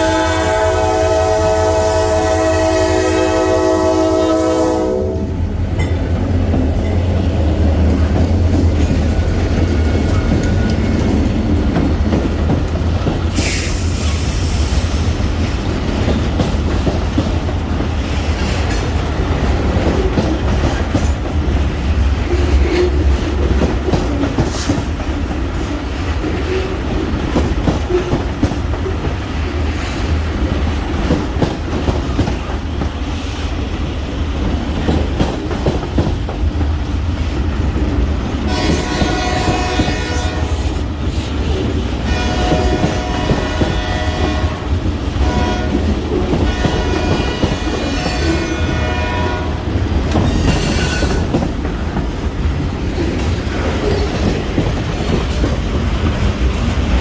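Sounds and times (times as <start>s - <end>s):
train horn: 0.0s - 5.4s, 38.4s - 40.9s, 42.0s - 49.8s
freight train rumbling: 0.0s - 57.0s
wheels clicking over rail joints: 5.7s - 13.9s.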